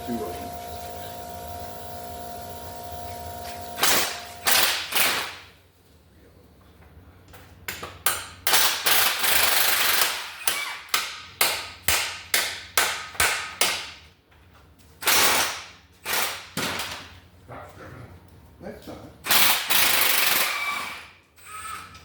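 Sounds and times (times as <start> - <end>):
air impact wrench hammering: 3.5 - 5.4, 8.0 - 14.0, 19.3 - 21.1.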